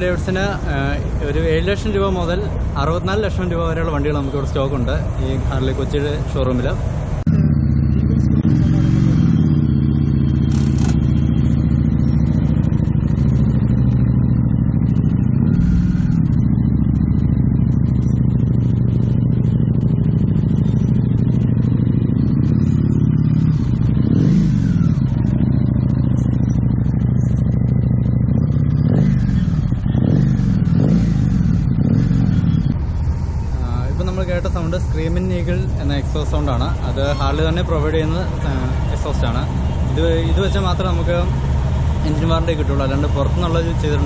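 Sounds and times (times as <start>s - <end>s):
motorcycle engine idling and revving: 0.0s - 44.0s.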